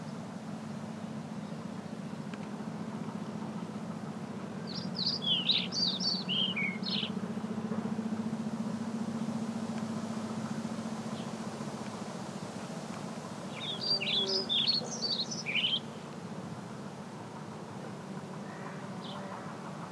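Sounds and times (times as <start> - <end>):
steady low hum with hiss: 0.0 - 19.9
songbird chirping: 3.2 - 16.4.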